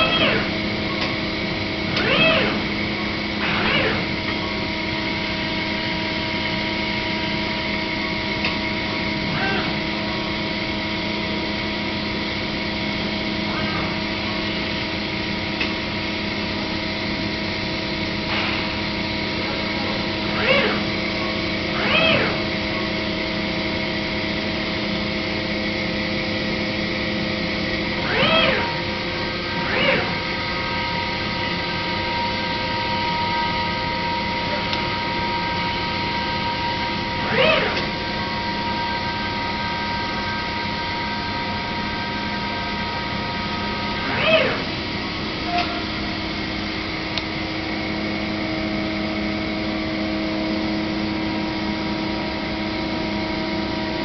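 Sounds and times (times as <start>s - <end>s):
machining center hum: 0.0s - 54.0s
brief rising and falling whines: 27.9s - 46.0s.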